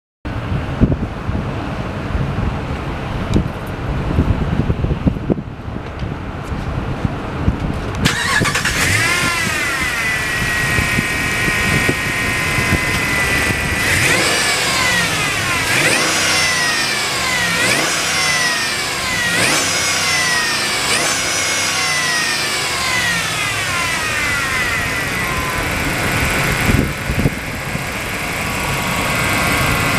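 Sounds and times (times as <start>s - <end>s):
engine revving in quick blips: 8.0s - 27.6s
pickup engine idling: 8.0s - 29.9s.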